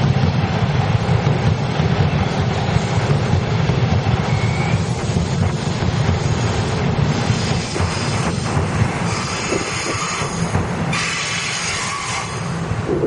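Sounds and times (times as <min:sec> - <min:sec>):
train wheels rumbling: 0:00.0 - 0:13.0
faint high wheel squeal: 0:09.0 - 0:12.5.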